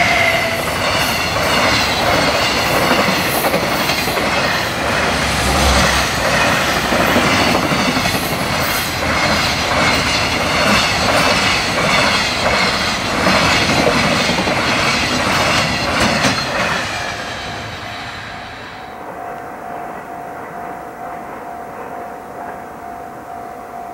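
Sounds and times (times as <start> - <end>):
steady tone: 0.0 - 9.2
train wheels clattering over rail joints: 0.2 - 17.5.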